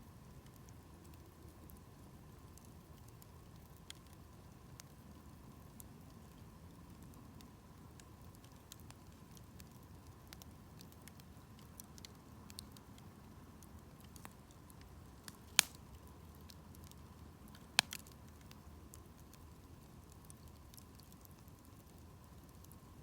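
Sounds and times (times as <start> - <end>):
campfire rumbling: 0.3 - 23.0
wood crackling: 8.0 - 22.9
burning wood popping: 13.6 - 22.8.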